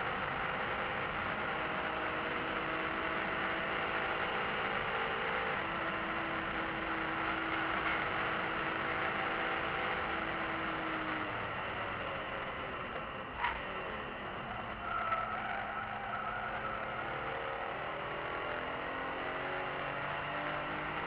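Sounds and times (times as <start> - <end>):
car engine running at speed: 0.0 - 21.0
wind and road noise: 0.0 - 21.0.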